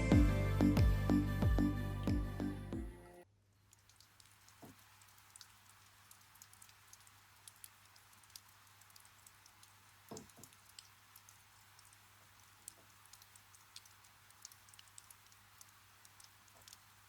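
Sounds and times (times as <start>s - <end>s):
raindrops dripping: 3.4s - 17.0s.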